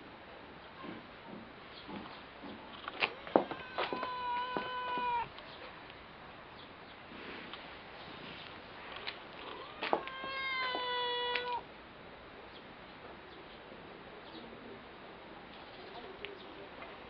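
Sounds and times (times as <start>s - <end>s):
cat meowing: 3.0s - 5.3s, 9.4s - 11.7s.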